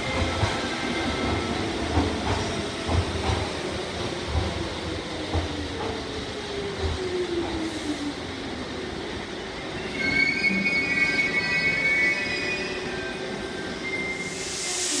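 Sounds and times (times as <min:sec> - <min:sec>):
high brake squeal: 0:09.8 - 0:15.0.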